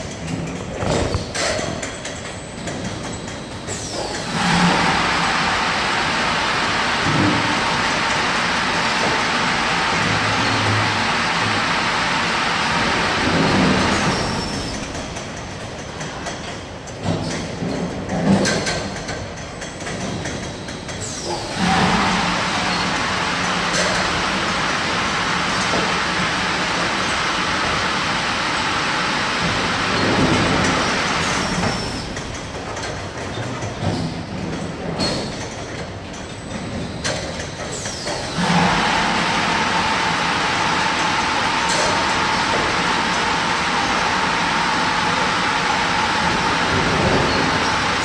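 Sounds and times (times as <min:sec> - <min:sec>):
high-pressure water jets spraying: 0:04.0 - 0:14.7, 0:38.1 - 0:48.0.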